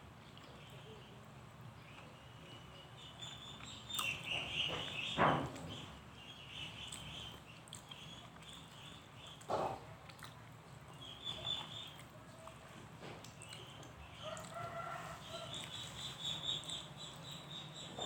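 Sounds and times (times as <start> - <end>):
wet mouth eating noises: 6.8 - 14.7.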